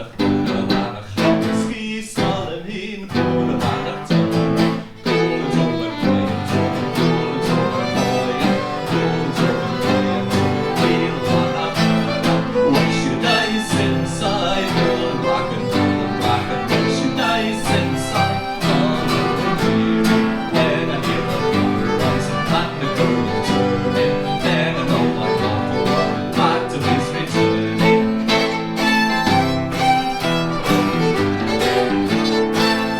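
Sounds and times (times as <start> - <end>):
fiddle melody: 0.0 - 1.8, 3.2 - 32.9
electric guitar strumming chords: 3.2 - 32.9.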